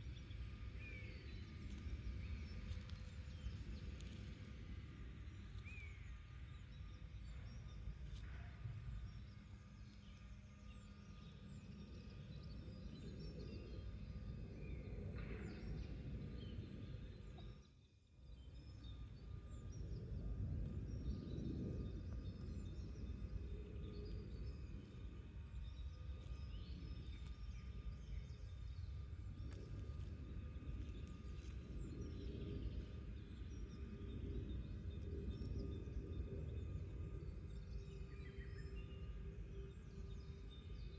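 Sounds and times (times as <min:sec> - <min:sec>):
low rumble: 0:18.8 - 0:40.9.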